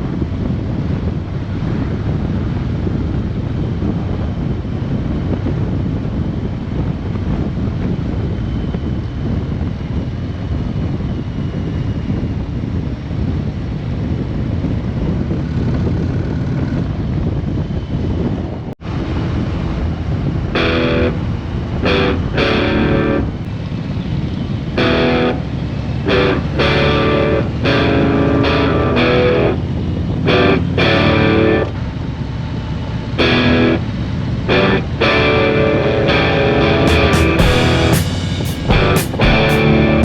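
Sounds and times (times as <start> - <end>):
wind noise on microphone: 0.0 - 33.9, 34.5 - 40.0
motorcycle engine and road rumble: 0.0 - 40.0
guitar music: 19.6 - 31.8, 33.2 - 40.0.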